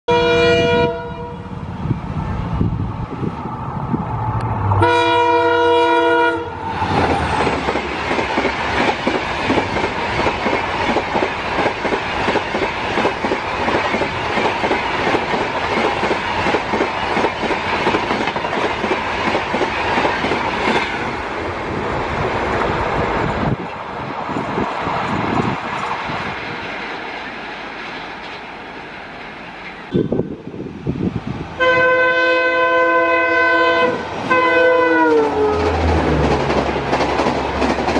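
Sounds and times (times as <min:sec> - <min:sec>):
diesel locomotive horn blasting: 0:00.1 - 0:01.6, 0:04.7 - 0:06.6, 0:31.6 - 0:35.9
rushing noise of train coaches: 0:00.1 - 0:37.9.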